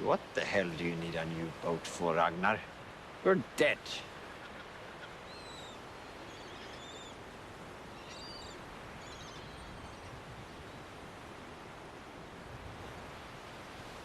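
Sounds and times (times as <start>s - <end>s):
outdoor background hiss: 0.0s - 14.0s
faint bird chirps: 4.2s - 10.9s.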